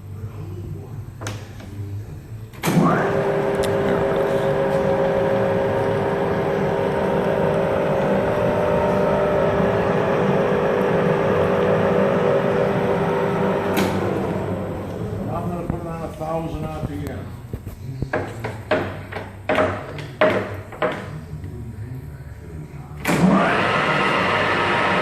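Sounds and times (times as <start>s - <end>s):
drill press motor whining: 2.7s - 15.3s, 23.1s - 25.0s.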